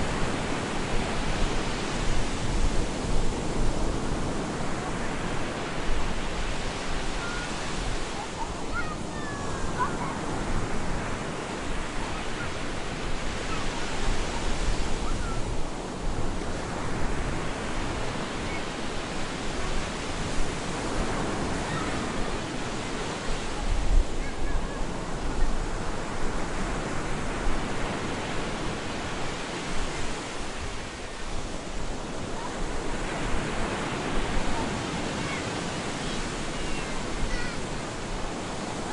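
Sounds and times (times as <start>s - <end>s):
surf breaking on a beach: 0.0s - 38.9s.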